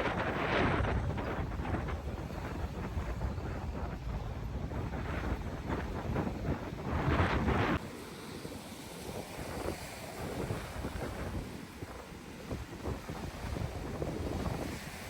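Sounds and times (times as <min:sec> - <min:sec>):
wind buffeting microphone: 0:00.0 - 0:15.0
waves on shore: 0:05.1 - 0:15.0.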